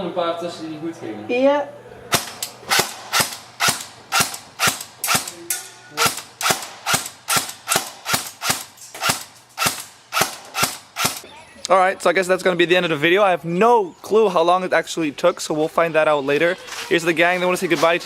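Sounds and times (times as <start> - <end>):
airsoft rifle shots: 2.1 - 11.2.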